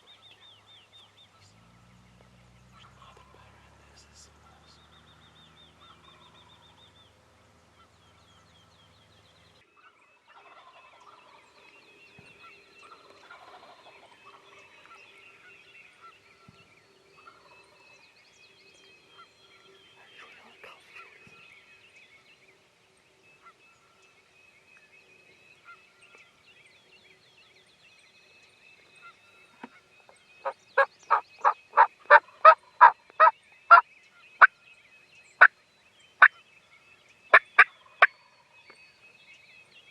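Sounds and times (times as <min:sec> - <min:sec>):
faint birdsong: 0:00.0 - 0:39.9
turkey yelps: 0:30.4 - 0:33.8.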